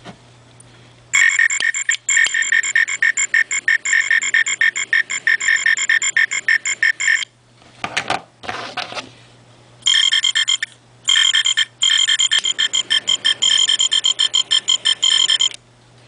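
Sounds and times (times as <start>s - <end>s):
electronic beeping croak: 1.2s - 7.3s, 9.8s - 15.6s.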